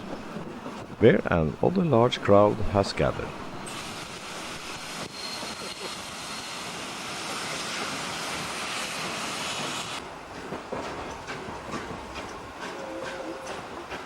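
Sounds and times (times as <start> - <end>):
train running on rails: 0.0 - 14.0.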